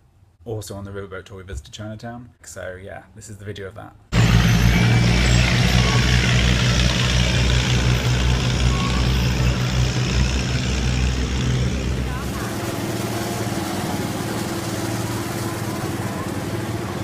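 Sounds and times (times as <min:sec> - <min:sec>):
loud engine running: 0:04.1 - 0:17.0.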